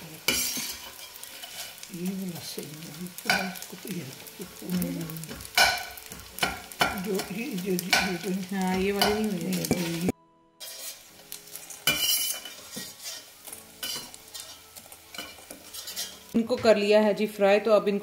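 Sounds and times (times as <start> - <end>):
gum sizzling in ghee: 0.0 - 16.4
metal spoon scraping pot: 0.3 - 1.8, 8.7 - 11.1, 11.8 - 16.3.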